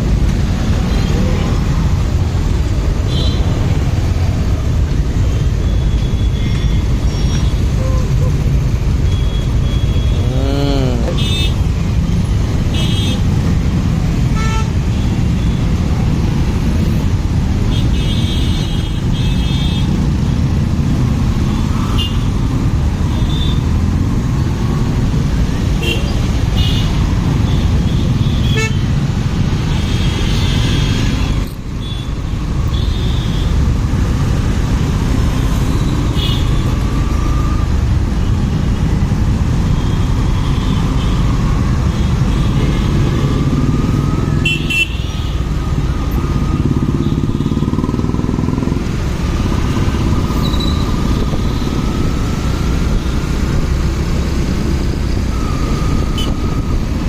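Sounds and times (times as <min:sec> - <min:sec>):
wind and road noise: 0:00.0 - 0:57.0
motorcycle engine: 0:42.8 - 0:52.5.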